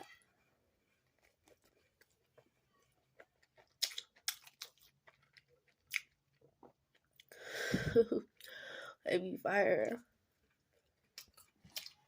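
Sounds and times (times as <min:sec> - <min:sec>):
chewing soft dough: 0:00.0 - 0:07.4, 0:10.0 - 0:12.0
wet mouth clicks and smacks: 0:03.8 - 0:04.8.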